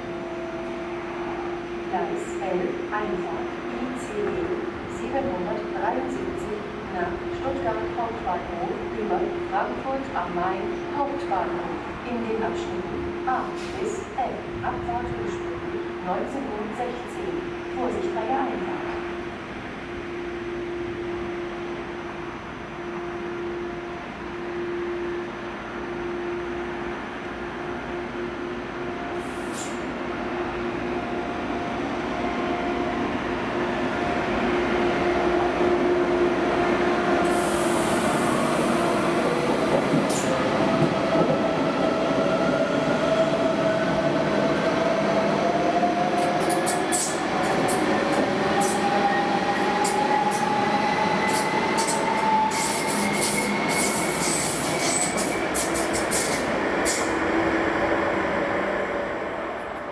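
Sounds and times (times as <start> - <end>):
train running noise: 26.7 - 59.9
wheels clicking and squealing: 51.3 - 57.1.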